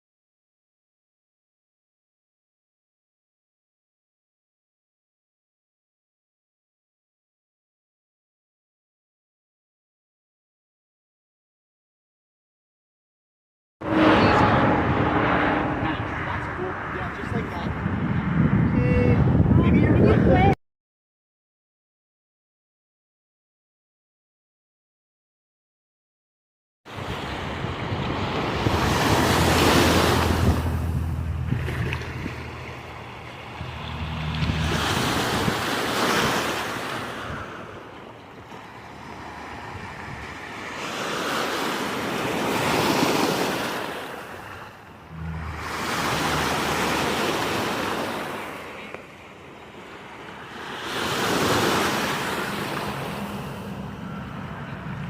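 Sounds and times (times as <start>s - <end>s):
ocean surf breaking: 13.8s - 17.8s, 26.9s - 55.0s
wind rumbling on microphone: 13.8s - 20.6s, 26.9s - 40.5s.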